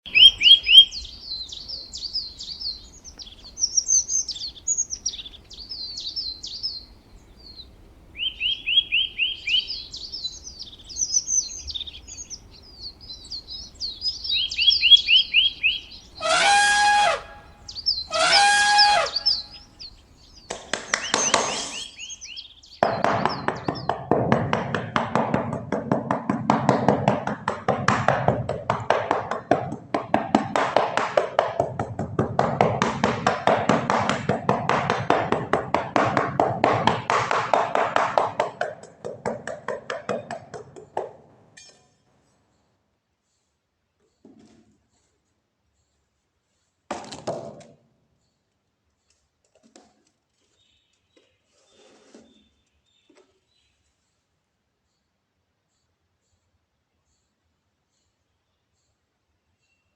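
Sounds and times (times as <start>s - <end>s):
small birds chirping and trilling: 0.0s - 25.0s
loud bird calls: 0.1s - 24.9s
rapid clattering tapping: 22.8s - 41.2s.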